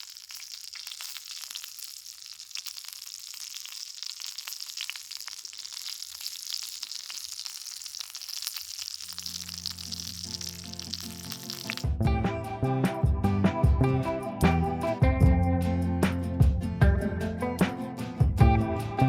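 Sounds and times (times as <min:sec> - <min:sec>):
food sizzling in a skillet: 0:00.0 - 0:11.9.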